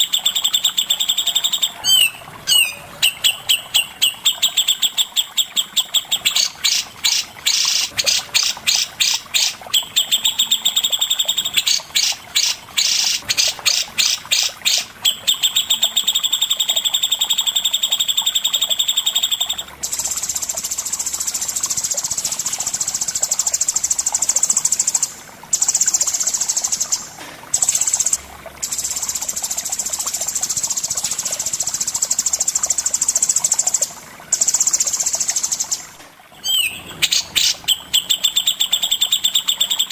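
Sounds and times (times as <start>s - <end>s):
songbirds chirping and trilling: 0.5s - 10.7s, 35.2s - 39.6s.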